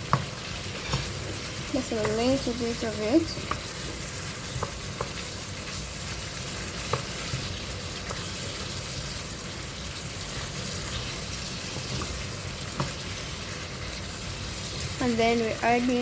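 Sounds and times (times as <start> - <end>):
food sizzling in oil: 0.0 - 16.0.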